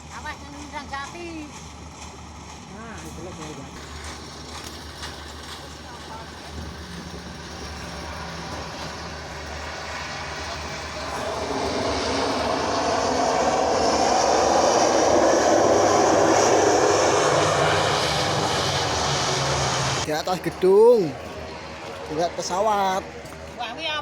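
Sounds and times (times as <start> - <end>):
airplane flying past: 1.6 - 24.0.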